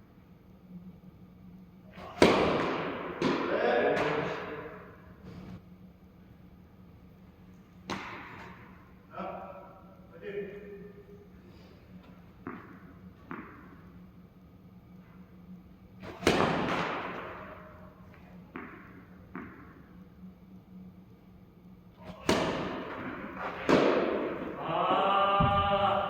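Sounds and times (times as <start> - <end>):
tennis balls struck by rackets: 1.9 - 5.1, 7.8 - 9.0, 12.0 - 14.0, 16.0 - 19.9, 22.0 - 24.6
tennis balls bouncing on court: 2.0 - 4.8, 7.8 - 8.7, 12.0 - 13.9, 16.0 - 19.9, 22.1 - 24.6.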